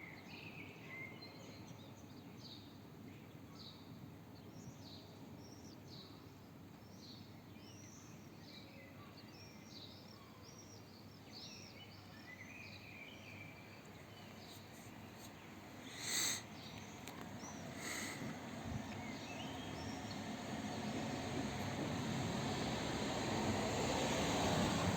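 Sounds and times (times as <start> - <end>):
low background noise: 0.0 - 24.9
birds chirping and singing: 15.9 - 21.0.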